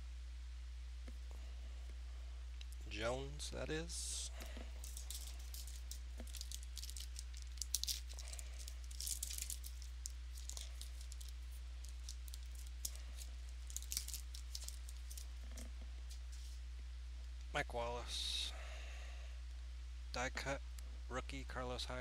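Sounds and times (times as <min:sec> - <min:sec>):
low electrical hum: 0:00.0 - 0:22.0
trading cards flipping: 0:04.4 - 0:15.3.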